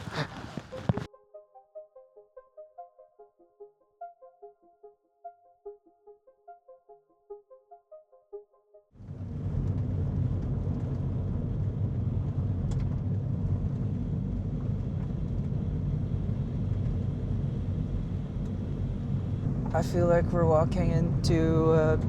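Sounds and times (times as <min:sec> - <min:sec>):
soft keyboard music: 0:00.0 - 0:09.0, 0:19.4 - 0:22.0
steady low rumbling: 0:09.0 - 0:22.0.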